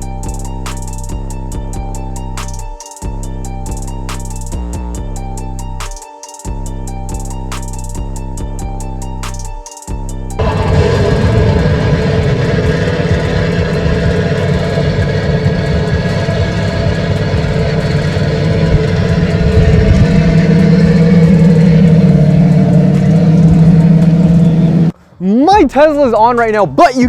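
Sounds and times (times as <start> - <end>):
car engine idling: 10.4 - 24.9.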